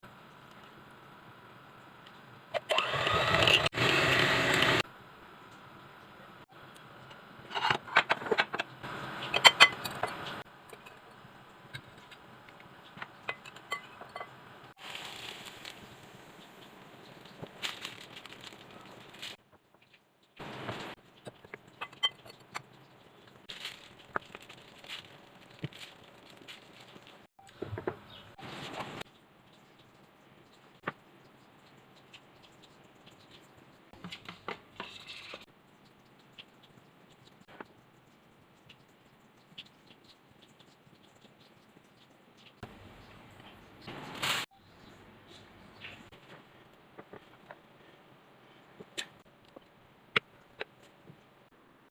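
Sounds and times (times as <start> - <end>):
utensil clinking against dishes: 7.5 - 12.2, 13.0 - 14.4, 21.3 - 22.6.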